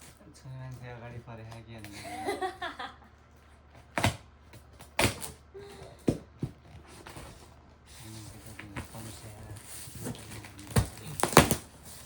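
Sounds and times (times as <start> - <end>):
boxes knocking and thudding: 3.8 - 7.5, 8.1 - 12.0.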